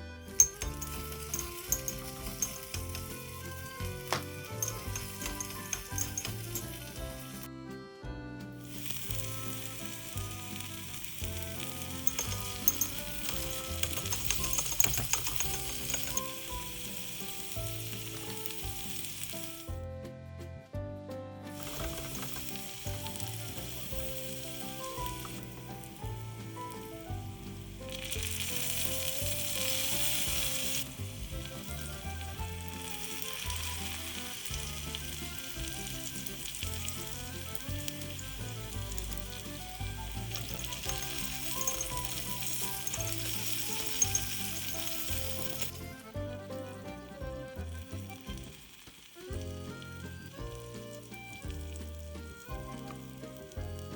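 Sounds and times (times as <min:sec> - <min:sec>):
light background music: 0:00.0 - 0:53.9
food sizzling in frying pan: 0:00.3 - 0:07.5, 0:08.6 - 0:19.8, 0:21.5 - 0:53.9.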